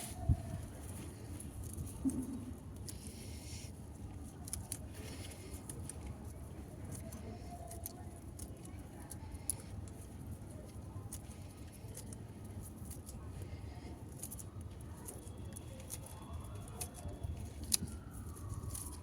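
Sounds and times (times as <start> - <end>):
faint siren wailing: 16.8 - 19.0.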